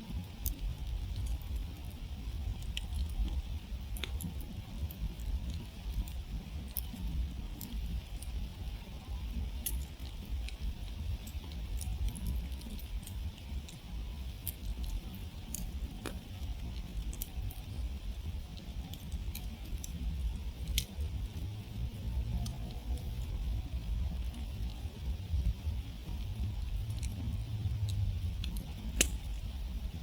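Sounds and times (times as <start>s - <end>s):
campfire crackling: 0.0s - 30.0s
fire pops and snaps: 0.0s - 30.0s.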